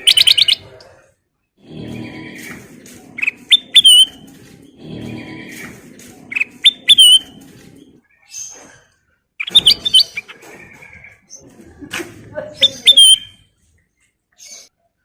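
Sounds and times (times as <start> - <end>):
bulbul singing whistled phrases: 6.3 - 7.3, 12.6 - 13.5.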